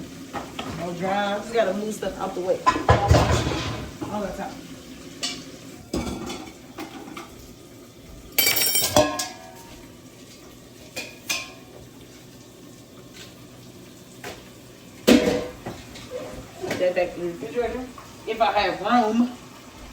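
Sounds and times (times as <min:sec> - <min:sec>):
metal pot clanking: 0:02.2 - 0:04.3, 0:05.1 - 0:07.4, 0:08.4 - 0:09.8, 0:10.9 - 0:11.8, 0:15.0 - 0:16.9
cookware knocks and clinks: 0:02.6 - 0:04.1, 0:05.2 - 0:07.3, 0:08.4 - 0:09.7, 0:15.1 - 0:15.8.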